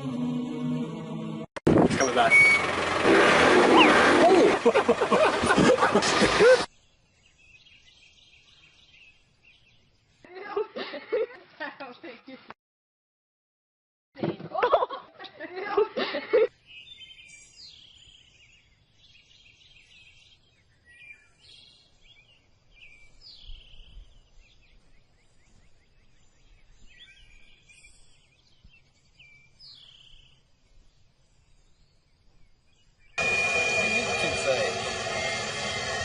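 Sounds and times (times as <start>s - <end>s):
birds chirping: 3.7s - 4.0s, 6.6s - 10.3s, 16.5s - 36.0s.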